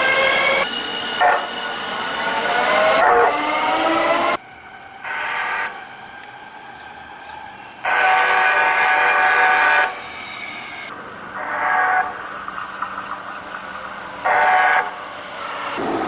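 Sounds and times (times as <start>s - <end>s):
train horn blasts: 1.2s - 1.6s, 5.0s - 5.8s, 7.8s - 10.0s, 11.4s - 12.1s, 14.2s - 15.0s.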